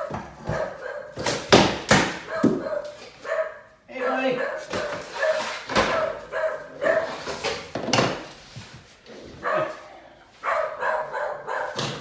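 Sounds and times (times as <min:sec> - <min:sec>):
dog barking: 0:00.0 - 0:01.5, 0:02.1 - 0:07.6, 0:09.3 - 0:12.0.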